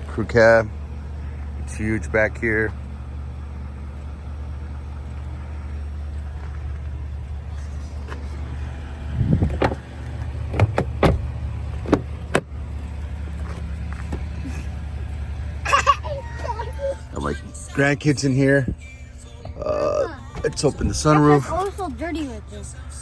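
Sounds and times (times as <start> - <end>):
engine idling: 0.0 - 23.0
sharp clicks and knocks: 9.4 - 12.5.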